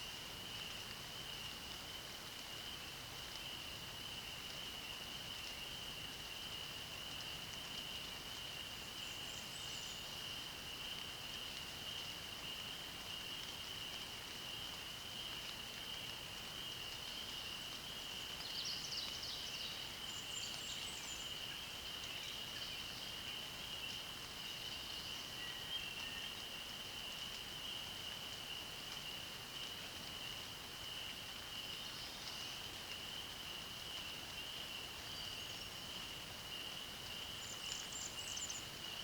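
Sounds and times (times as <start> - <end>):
bird song: 8.8 - 10.2, 17.0 - 27.9, 31.5 - 33.1, 33.9 - 39.0.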